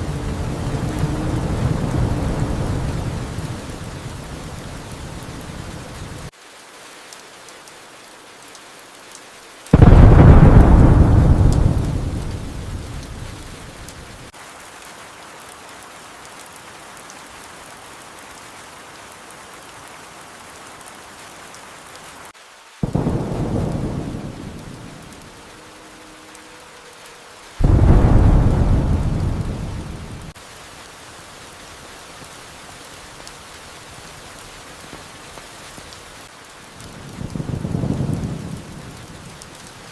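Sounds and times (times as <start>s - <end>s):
thunder claps rumbling: 0.0s - 6.0s, 9.7s - 14.3s, 22.8s - 26.4s, 27.6s - 30.4s, 36.8s - 39.6s
steady rain: 0.0s - 39.9s.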